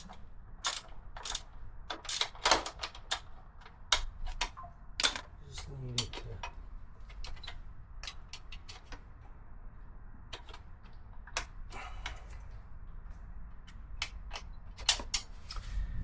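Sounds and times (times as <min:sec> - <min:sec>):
metallic clicks of hand tools: 0:00.0 - 0:03.2.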